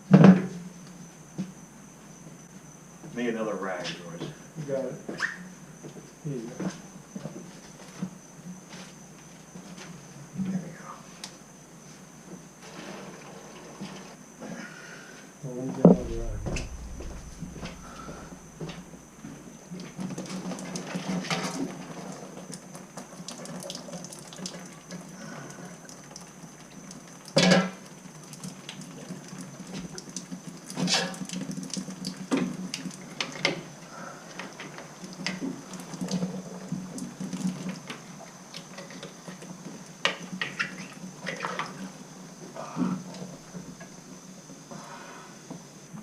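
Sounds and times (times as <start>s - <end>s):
steady hum: 15.8s - 19.4s
water trickling into a bucket: 19.9s - 42.0s.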